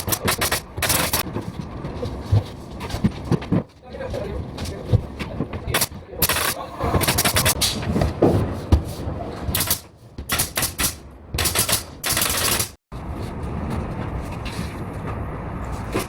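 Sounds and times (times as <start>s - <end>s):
pneumatic nail gun firing: 0.0s - 1.2s, 5.8s - 7.8s, 9.6s - 12.8s
steady background noise: 0.0s - 16.0s.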